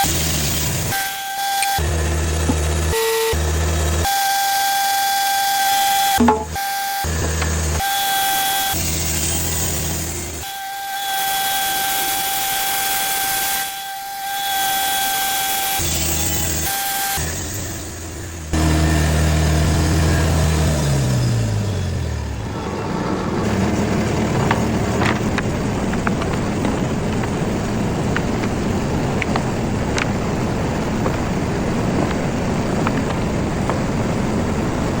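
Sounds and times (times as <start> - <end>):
motor hum slowing down: 1.6 - 7.9, 15.8 - 35.0
steady noisy rush: 22.4 - 35.0.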